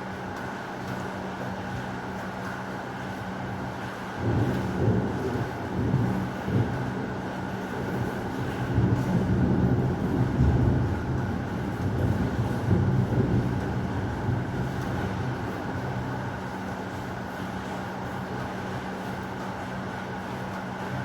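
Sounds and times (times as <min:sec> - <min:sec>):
heavy rain: 0:04.2 - 0:20.3.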